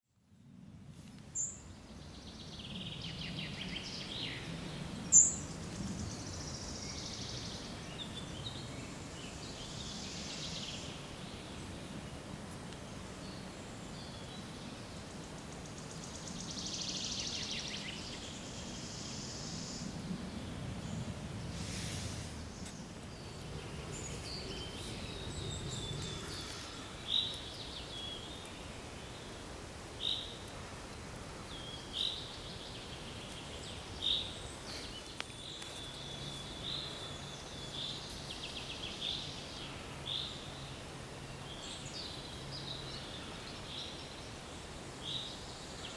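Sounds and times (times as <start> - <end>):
steady background hiss: 0.3 - 45.9
songbirds singing: 1.4 - 45.9.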